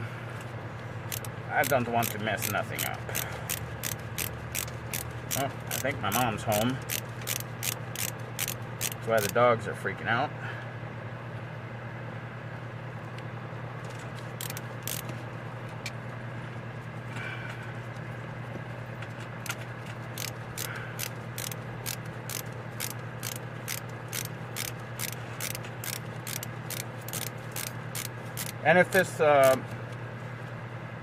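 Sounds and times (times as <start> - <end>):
steady low hum: 0.0 - 31.0
ratchet tool clicking: 1.1 - 9.4, 14.4 - 15.1, 20.2 - 29.6.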